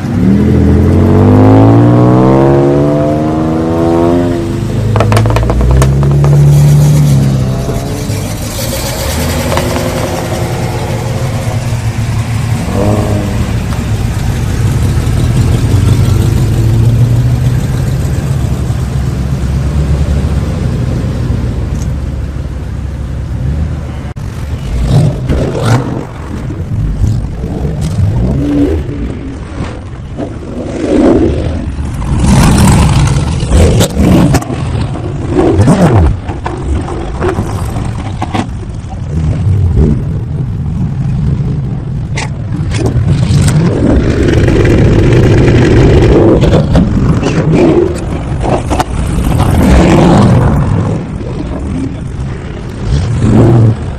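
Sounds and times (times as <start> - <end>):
car engine running: 4.7 - 23.1.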